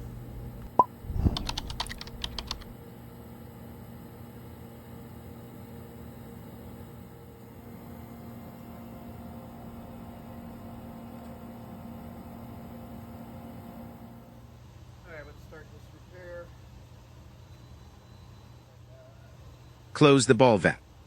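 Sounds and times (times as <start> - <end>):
machinery hum: 0.0 - 15.4.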